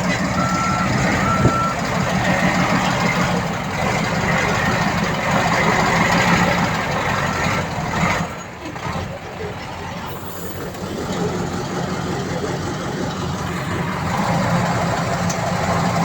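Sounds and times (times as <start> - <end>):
heavy diesel engine running: 0.0 - 16.0
backup alarm beeping: 0.3 - 1.9.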